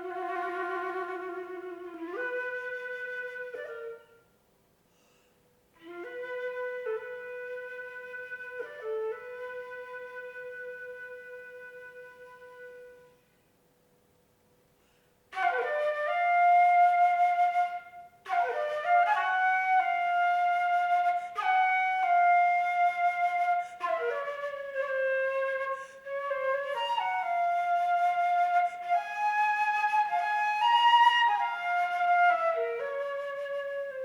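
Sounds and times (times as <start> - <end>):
solo flute playing: 0.0 - 4.4, 5.8 - 13.4, 15.3 - 34.0.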